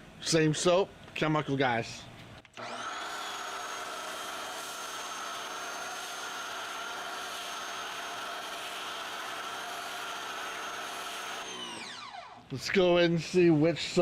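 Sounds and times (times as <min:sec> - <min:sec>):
pressure washer motor whine: 0:02.6 - 0:12.4.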